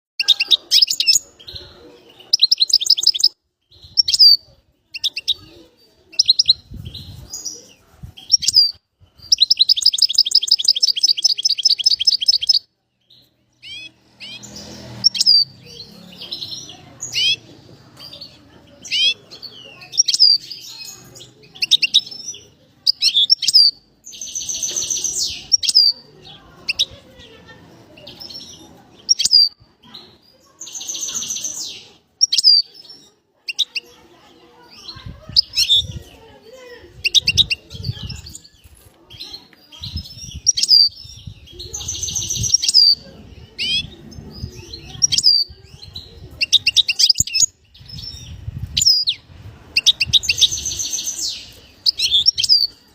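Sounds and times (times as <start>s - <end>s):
songbird singing: 0.2s - 52.9s
bird trilling: 13.6s - 17.4s.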